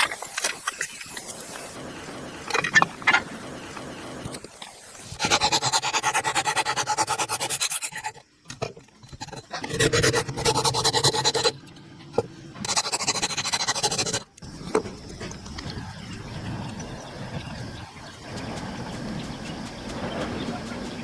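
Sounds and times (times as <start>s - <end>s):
tool rasping wood: 9.2s - 11.6s, 12.6s - 14.2s.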